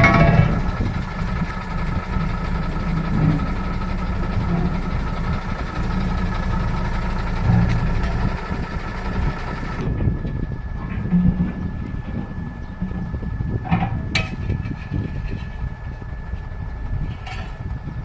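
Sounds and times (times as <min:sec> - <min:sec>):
heavy diesel engine idling: 0:00.0 - 0:18.0.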